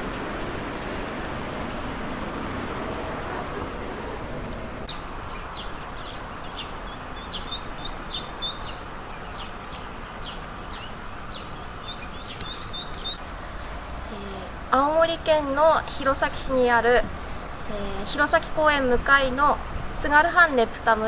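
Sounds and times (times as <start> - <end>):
low background rumble: 0.0 - 8.8.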